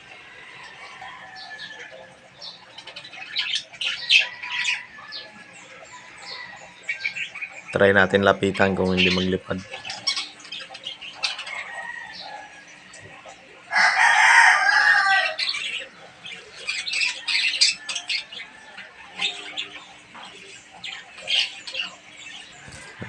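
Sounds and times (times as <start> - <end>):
rooster crowing: 0.0 - 2.2, 4.0 - 7.3, 11.4 - 12.7, 13.7 - 15.7, 22.6 - 23.0
lovebirds chirping: 0.0 - 23.0.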